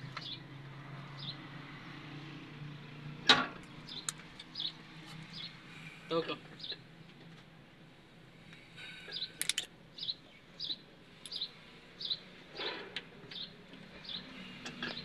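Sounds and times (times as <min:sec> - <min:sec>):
bird chirping: 0:03.8 - 0:05.6, 0:09.1 - 0:12.3, 0:13.2 - 0:15.0
sharp metallic clicks: 0:03.9 - 0:04.5, 0:09.4 - 0:09.7.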